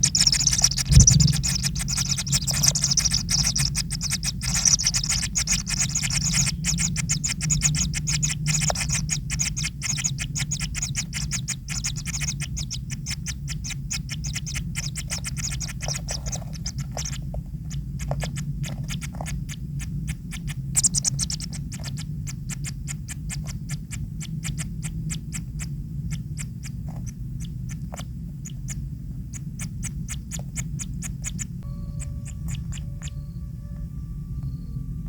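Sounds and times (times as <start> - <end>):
high rasping bursts: 0.0 - 17.0
chicks clicking: 0.0 - 33.2
steady low hum: 0.0 - 35.0.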